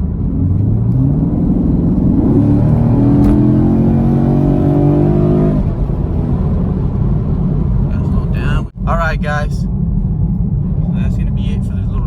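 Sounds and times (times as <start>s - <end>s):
car engine accelerating hard: 0.0s - 8.6s.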